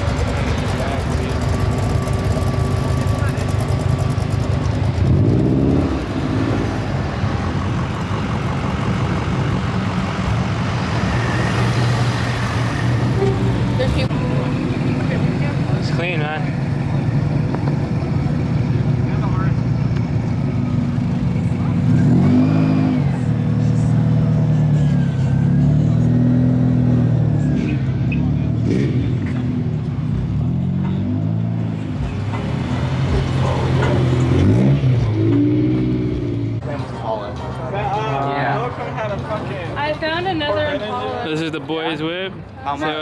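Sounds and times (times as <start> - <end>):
car engine running: 0.0 - 14.2.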